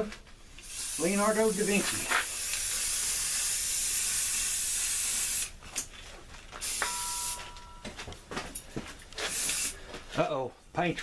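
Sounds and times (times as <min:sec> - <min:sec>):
aerosol spray paint hissing: 0:00.6 - 0:05.6, 0:06.6 - 0:07.4, 0:09.2 - 0:09.8.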